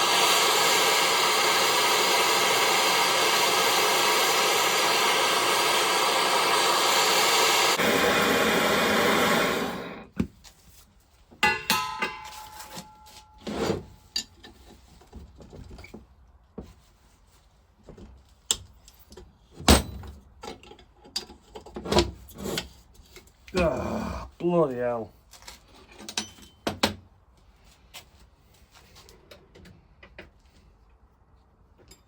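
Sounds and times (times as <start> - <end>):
heat gun blowing: 0.0 - 10.2
metal tools knocking on iron: 11.4 - 12.6.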